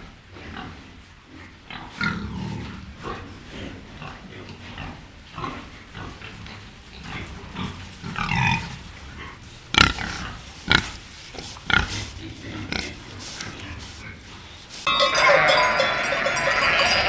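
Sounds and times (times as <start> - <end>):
pigs grunting: 0.2 - 17.0
pig calls: 7.0 - 17.0.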